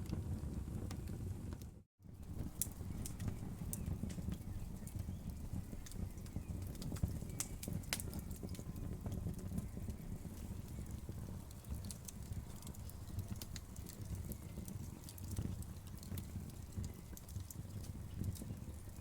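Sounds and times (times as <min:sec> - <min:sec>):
fire low rumble: 0:00.0 - 0:19.0
wood fire crackling and popping: 0:00.0 - 0:19.0.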